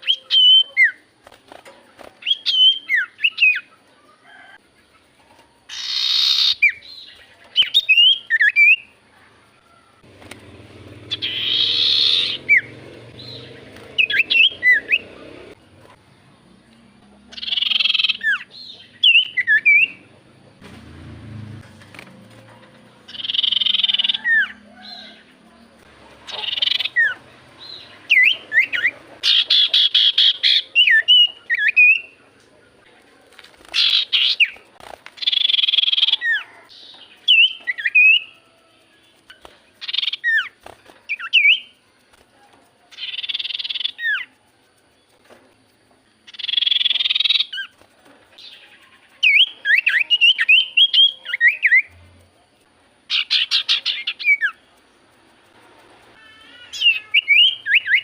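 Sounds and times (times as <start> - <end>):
bird singing and calling: 0.0 - 3.8, 5.7 - 9.0, 10.2 - 15.6, 17.3 - 20.2, 23.0 - 32.2, 33.7 - 38.4, 39.2 - 41.8, 42.9 - 44.4, 46.2 - 52.0, 53.1 - 54.6, 56.4 - 58.0.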